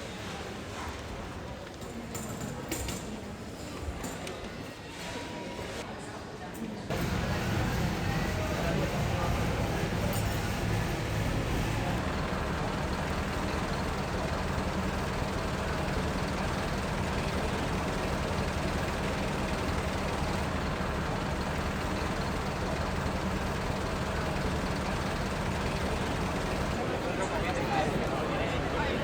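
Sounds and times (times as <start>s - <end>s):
vehicle engine idling: 6.9s - 28.8s
traffic noise: 6.9s - 29.0s.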